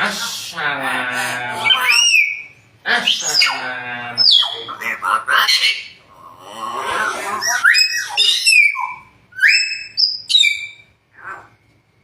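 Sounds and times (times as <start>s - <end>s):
myna calling and whistling: 1.6s - 6.0s, 6.7s - 11.5s.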